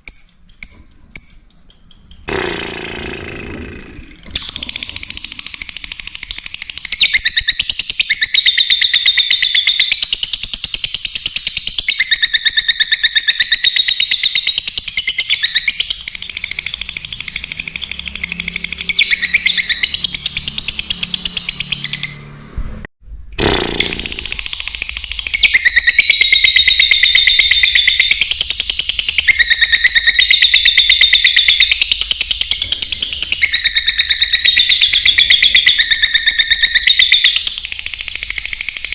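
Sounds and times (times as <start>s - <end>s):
lovebirds chattering and chirping: 23.7s - 38.9s.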